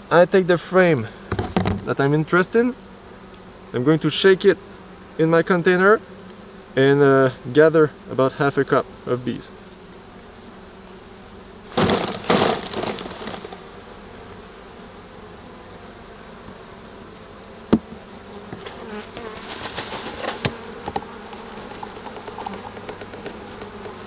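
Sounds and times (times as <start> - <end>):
honeybees buzzing: 0.0 - 24.0
knocking and rustling: 1.3 - 2.1, 11.7 - 13.8, 17.7 - 24.0.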